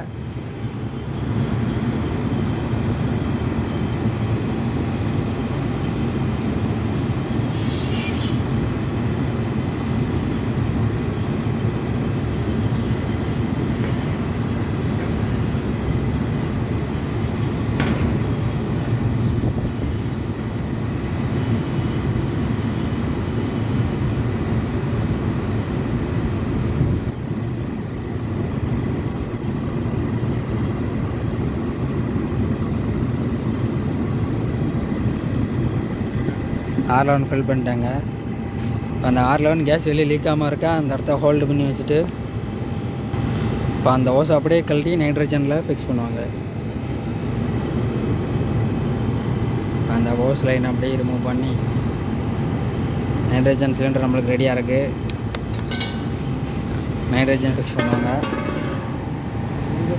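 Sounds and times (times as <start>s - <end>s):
short hiss: 7.5s - 8.4s
machinery low rumble: 8.5s - 31.5s.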